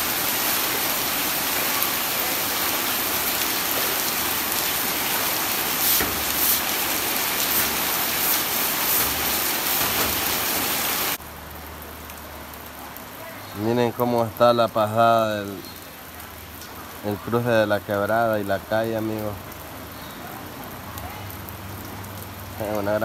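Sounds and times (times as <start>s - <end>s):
broom sweeping water: 0.0s - 11.2s
heavy rain pouring: 0.0s - 23.0s.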